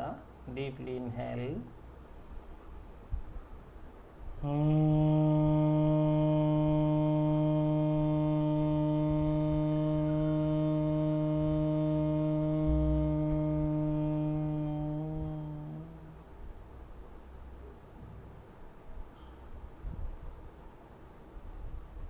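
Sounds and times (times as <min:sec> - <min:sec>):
person chanting hummed mmm: 0:04.4 - 0:16.3.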